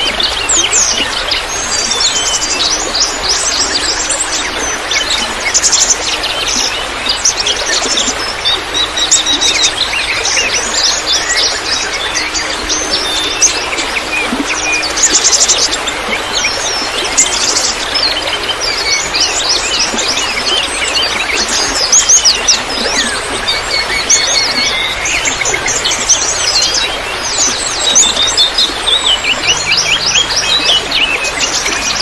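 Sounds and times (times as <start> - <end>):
songbirds chirping and trilling: 0.0 - 32.0
trickle of running water: 0.0 - 32.0.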